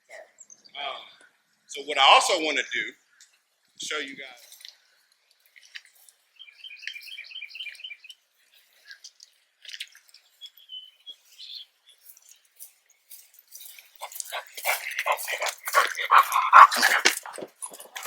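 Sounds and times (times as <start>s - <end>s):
bird chirping: 6.0s - 9.0s, 10.2s - 18.0s.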